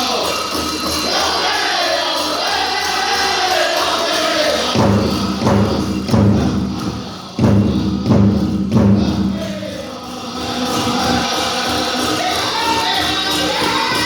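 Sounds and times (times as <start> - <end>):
group singing in high voices: 0.0 - 14.0
heavy beats on big drum: 4.8 - 10.0.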